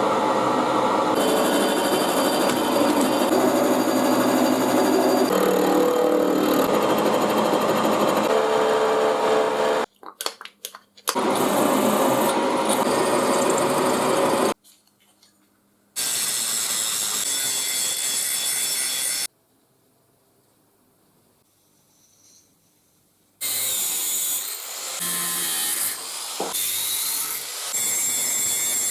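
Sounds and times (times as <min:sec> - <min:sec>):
power tool on steel rail: 0:00.7 - 0:09.9, 0:23.4 - 0:28.9.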